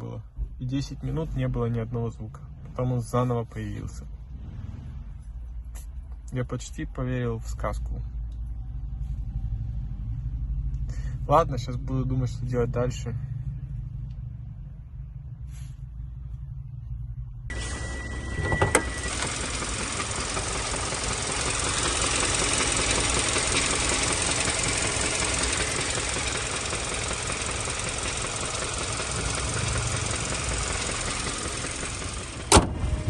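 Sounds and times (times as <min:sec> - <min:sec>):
car engine knocking: 0:18.1 - 0:33.0.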